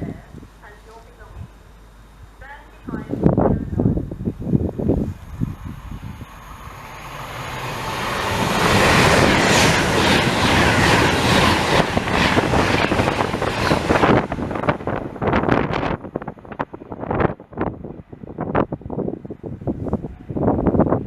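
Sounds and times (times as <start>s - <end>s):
train passing: 3.2s - 19.4s.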